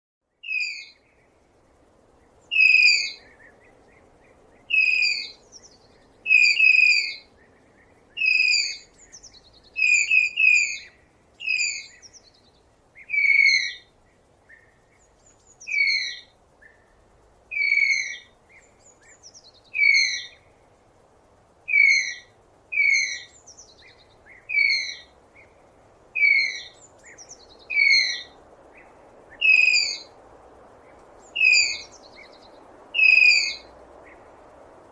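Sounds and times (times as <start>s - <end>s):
tapir whistling squeals: 31.4s - 31.8s.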